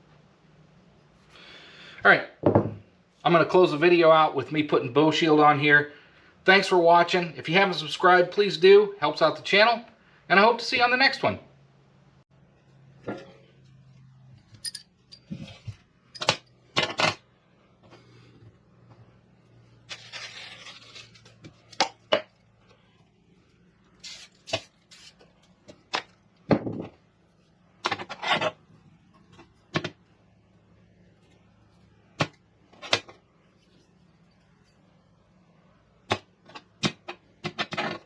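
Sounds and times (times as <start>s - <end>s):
steel rods clinking and knocking: 14.6s - 15.5s.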